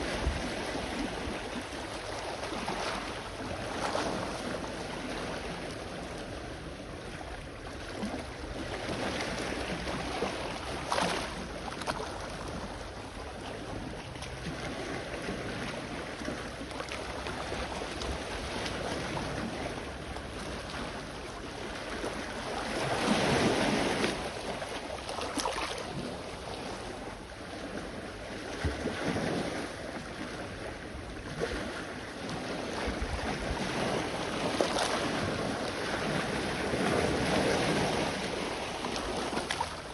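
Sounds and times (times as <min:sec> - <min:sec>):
sea waves washing in: 0:00.0 - 0:39.9
wind buffeting microphone: 0:31.3 - 0:39.4.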